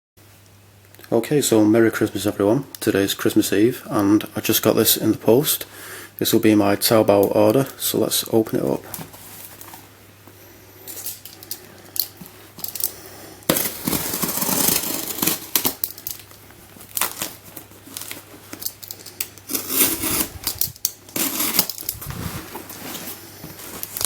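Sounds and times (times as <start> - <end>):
packaging tearing and rustling: 10.9 - 24.0.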